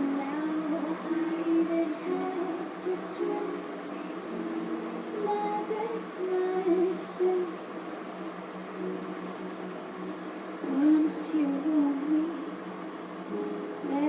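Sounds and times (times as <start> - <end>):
person singing softly: 0.0 - 7.7, 10.6 - 14.0
steady low hum: 0.0 - 14.0.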